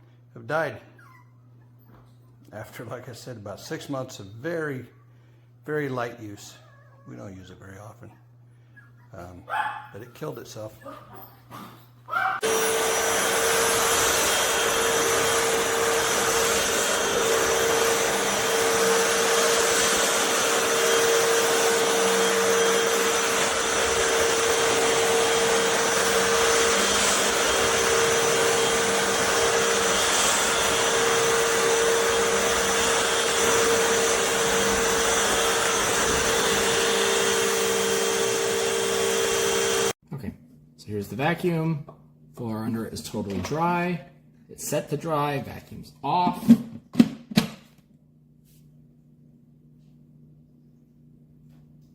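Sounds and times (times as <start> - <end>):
vacuum motor running: 12.3 - 40.0.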